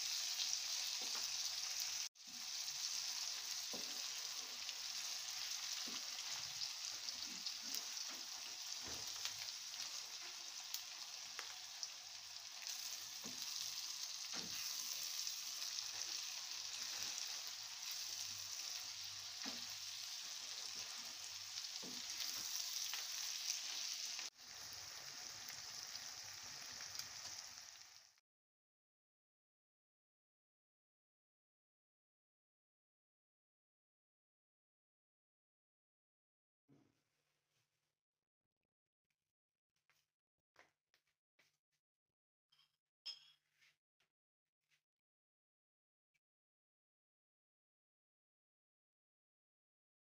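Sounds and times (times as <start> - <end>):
vegetables sizzling in a wok: 0.0 - 28.2.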